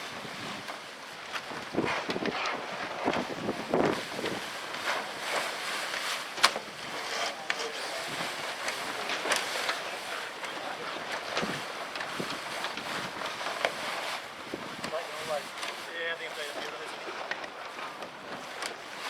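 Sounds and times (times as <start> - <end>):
wind on microphone: 0.0 - 0.7, 1.4 - 4.8, 10.6 - 15.5.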